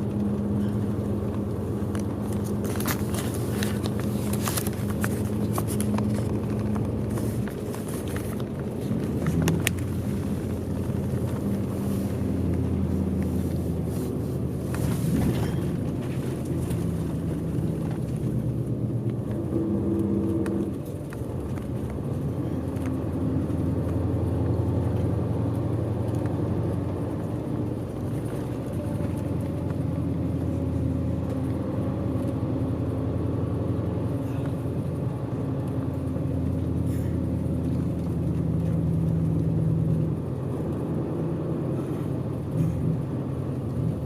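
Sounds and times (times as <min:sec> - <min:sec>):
bus diesel engine: 0:00.0 - 0:44.0.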